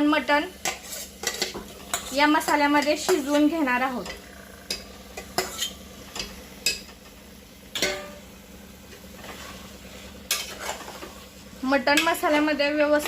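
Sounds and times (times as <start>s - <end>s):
faint sizzle: 0.0s - 13.0s
spoon scraping a pan: 0.6s - 6.9s, 9.2s - 11.2s.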